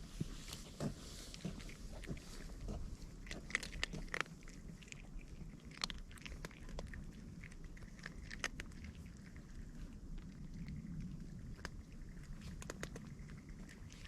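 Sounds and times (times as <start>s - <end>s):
cat crunching dry food: 0.2s - 14.0s.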